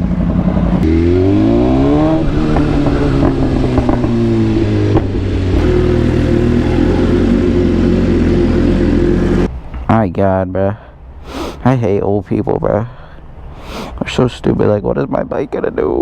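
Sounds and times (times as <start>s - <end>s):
motorcycle engine pulling away: 0.0s - 9.5s.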